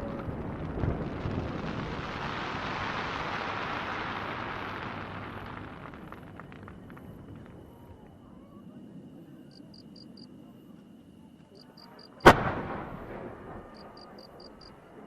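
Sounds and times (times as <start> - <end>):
firework crackling hiss: 0.0 - 7.6.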